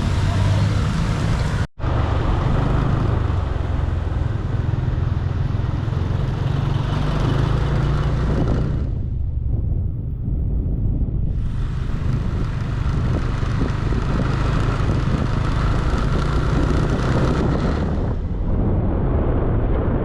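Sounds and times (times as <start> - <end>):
wind and road noise: 0.0 - 20.0
motor scooter engine running: 11.4 - 18.2.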